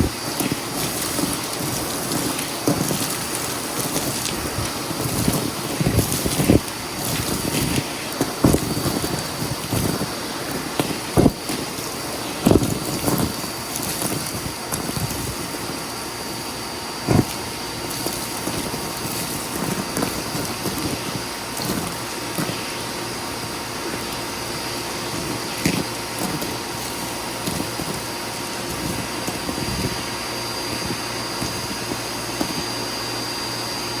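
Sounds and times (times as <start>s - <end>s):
knocks and crackles of debris: 0.0s - 15.8s, 17.0s - 24.3s
vacuum cleaner motor whine: 0.0s - 34.0s.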